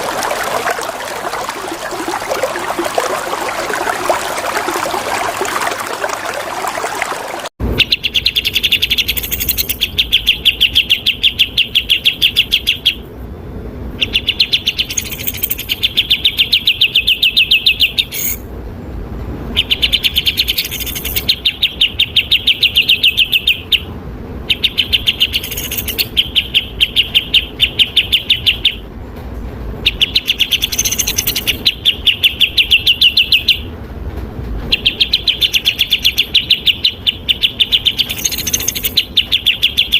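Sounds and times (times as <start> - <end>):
flowing water: 0.0 - 7.6
songbird chattering song: 7.8 - 13.0, 14.0 - 18.4, 19.6 - 23.9, 24.5 - 28.8, 29.8 - 33.7, 34.7 - 39.9.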